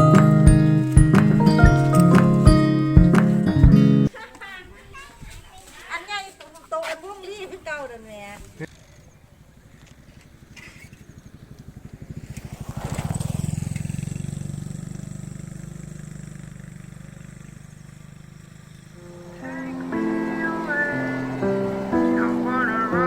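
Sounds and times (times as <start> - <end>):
vehicle engine running: 0.0 - 4.1, 8.7 - 23.0.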